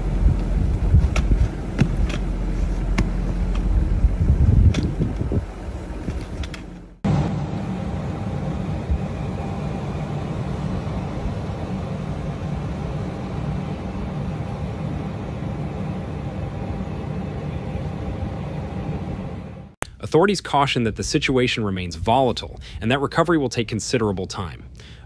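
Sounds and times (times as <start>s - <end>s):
engine running low rumble: 0.0s - 19.8s.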